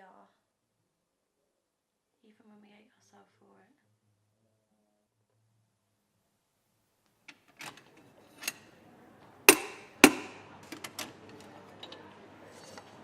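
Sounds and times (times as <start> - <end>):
loud sharp knocks: 9.5 - 10.4.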